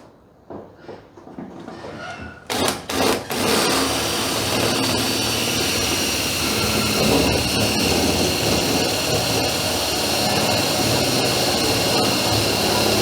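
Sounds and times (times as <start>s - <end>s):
machine running loudly: 3.3s - 13.0s.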